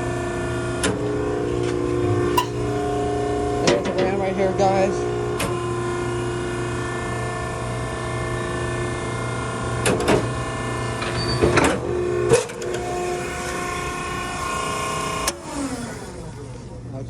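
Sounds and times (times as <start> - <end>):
hydraulic power unit humming: 1.1 - 7.0, 11.7 - 17.0
metal clanks: 2.2 - 3.9.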